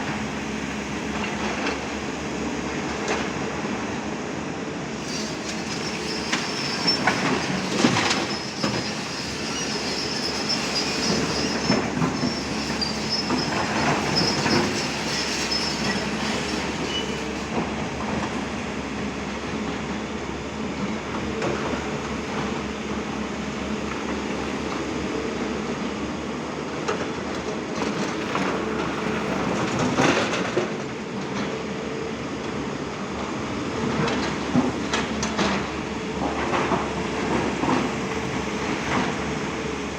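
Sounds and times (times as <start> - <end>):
excavator diesel engine: 0.0 - 39.9
high metal squeal: 5.0 - 17.5.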